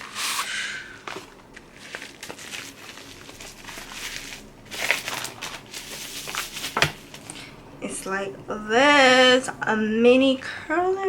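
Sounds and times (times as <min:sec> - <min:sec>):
packaging rustling: 0:00.0 - 0:07.6
packaging clicks: 0:01.0 - 0:07.4.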